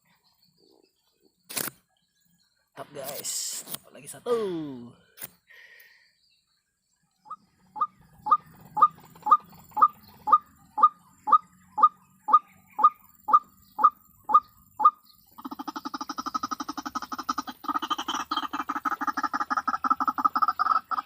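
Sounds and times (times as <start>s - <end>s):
waterhen calling: 7.3s - 21.0s.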